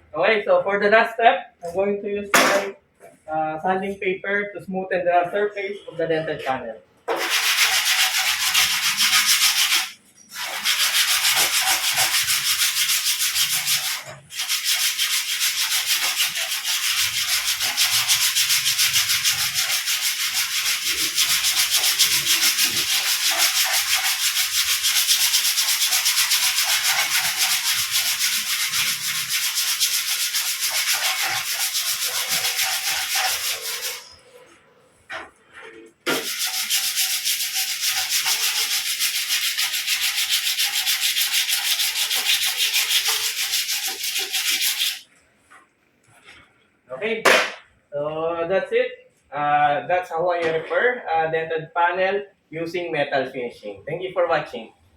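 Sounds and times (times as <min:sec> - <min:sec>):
sandpaper rubbing on metal: 0:07.1 - 0:34.4, 0:36.1 - 0:45.1.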